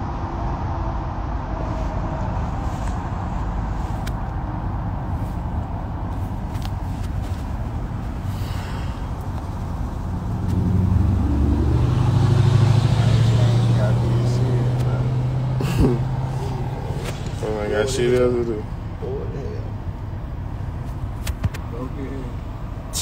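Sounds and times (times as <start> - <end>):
car engine low rumble: 0.0 - 23.0
low droning engine note: 8.3 - 19.7.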